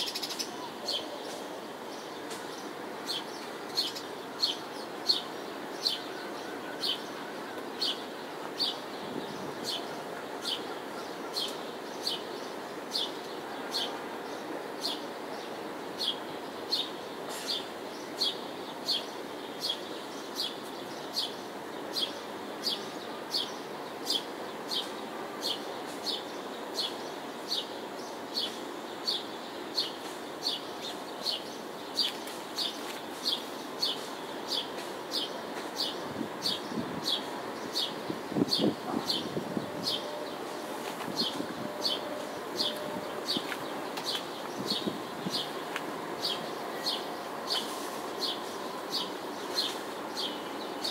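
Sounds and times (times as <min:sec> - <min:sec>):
bird chirping: 0:16.0 - 0:50.9
distant city hum: 0:21.4 - 0:50.9.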